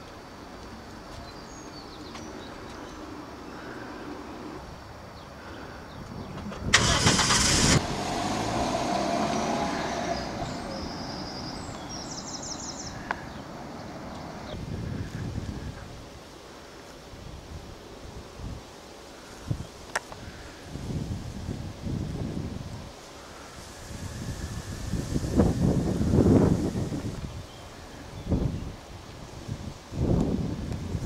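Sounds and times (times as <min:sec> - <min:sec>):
car engine starting and driving away: 0:06.4 - 0:12.2.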